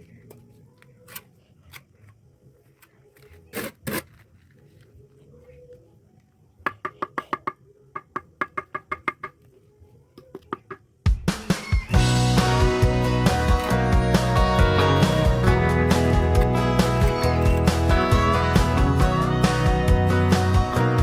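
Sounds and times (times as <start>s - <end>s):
bricks tapped into mortar: 6.7s - 9.4s
music: 11.1s - 21.0s.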